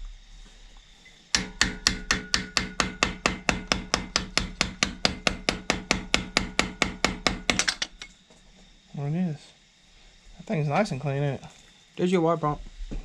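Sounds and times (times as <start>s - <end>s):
hammer tapping on metal: 1.4s - 8.1s.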